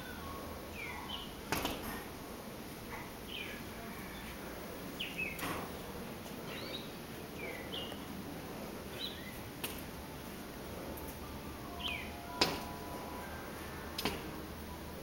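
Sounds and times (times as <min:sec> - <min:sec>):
bird chirping: 0:00.0 - 0:01.4, 0:02.9 - 0:04.4, 0:05.0 - 0:08.1, 0:08.9 - 0:09.5, 0:11.0 - 0:14.1.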